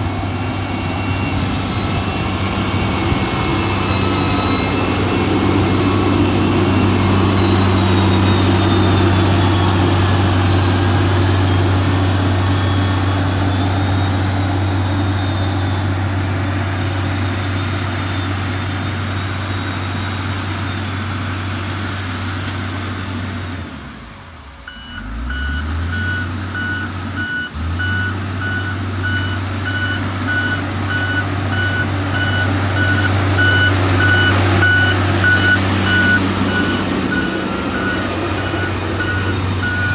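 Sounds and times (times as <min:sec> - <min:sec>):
reversing alarm beeping: 0:00.0 - 0:20.9, 0:24.7 - 0:39.9
heavy diesel engine running: 0:00.0 - 0:39.9.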